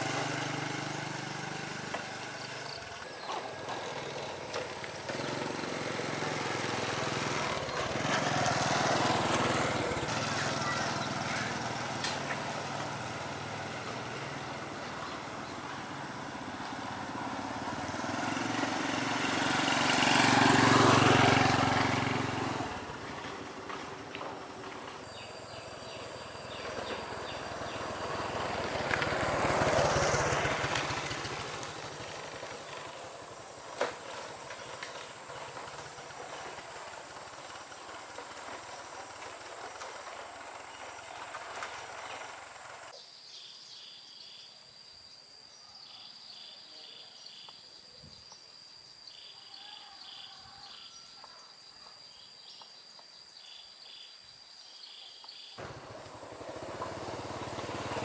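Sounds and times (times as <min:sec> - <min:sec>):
vehicle passing by: 0:00.0 - 0:42.9, 0:55.6 - 0:58.0
outdoor ambience: 0:00.0 - 0:58.0.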